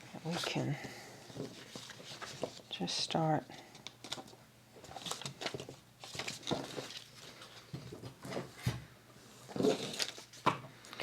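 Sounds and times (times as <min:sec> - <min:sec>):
paper rustling: 0:01.3 - 0:02.7, 0:03.8 - 0:08.5.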